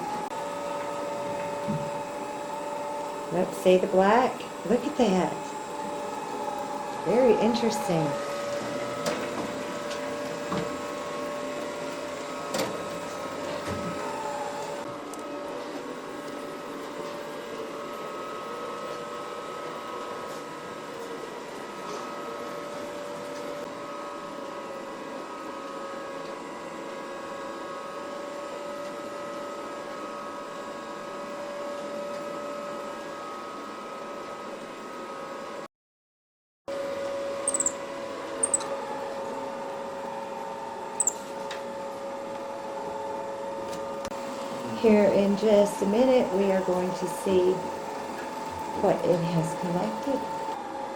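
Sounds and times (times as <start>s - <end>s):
robot vacuum whine: 0.0s - 18.7s.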